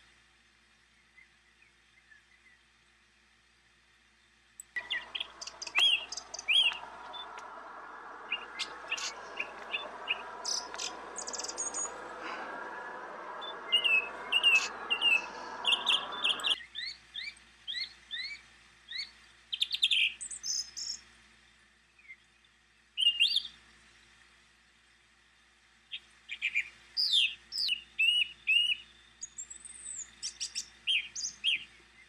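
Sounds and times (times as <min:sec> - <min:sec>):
small birds chirping: 0:04.2 - 0:21.1, 0:22.0 - 0:23.6, 0:25.9 - 0:32.0
rushing hiss: 0:04.8 - 0:16.6.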